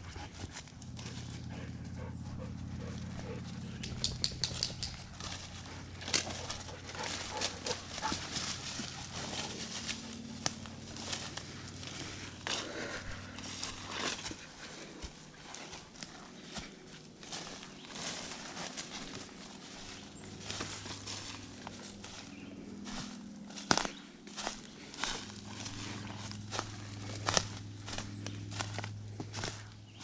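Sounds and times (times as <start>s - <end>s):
steady low hum: 0.0s - 30.0s
twigs and leaves crackling: 2.3s - 30.0s.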